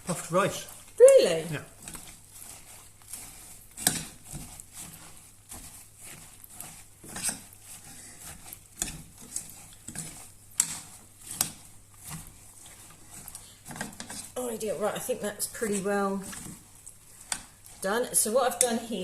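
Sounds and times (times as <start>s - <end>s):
utensil scraping a pan: 0.0s - 19.0s.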